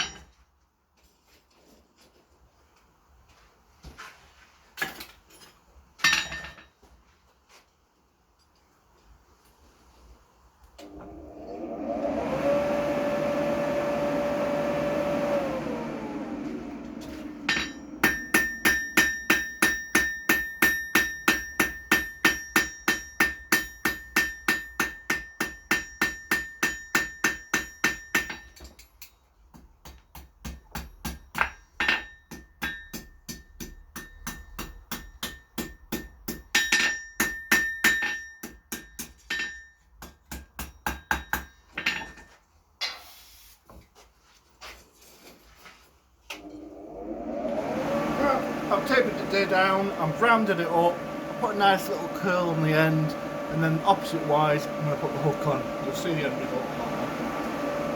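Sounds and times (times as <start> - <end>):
hammer striking steel on anvil: 17.4 - 42.2.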